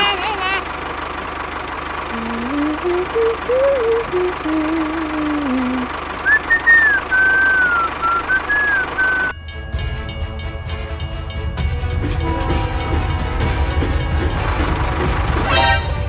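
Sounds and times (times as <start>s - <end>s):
engine-like drone: 0.0s - 16.0s
person humming a low melody: 2.1s - 6.3s
person whistling: 2.2s - 9.4s.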